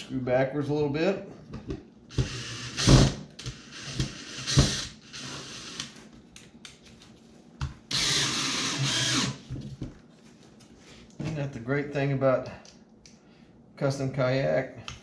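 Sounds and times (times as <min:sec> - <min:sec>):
power drill driving screw: 0:02.1 - 0:06.0, 0:07.9 - 0:09.4.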